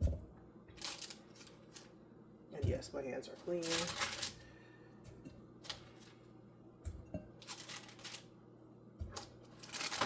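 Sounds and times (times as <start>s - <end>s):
rustling: 2.6s - 4.5s, 7.4s - 8.3s, 9.0s - 10.0s.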